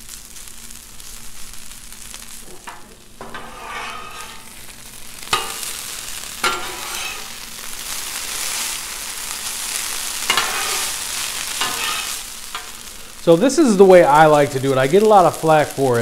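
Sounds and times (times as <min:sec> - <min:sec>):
potatoes sizzling on a griddle: 0:00.0 - 0:16.0
metal spatulas scraping: 0:02.5 - 0:04.7, 0:05.3 - 0:05.8, 0:06.4 - 0:07.4, 0:10.2 - 0:12.9.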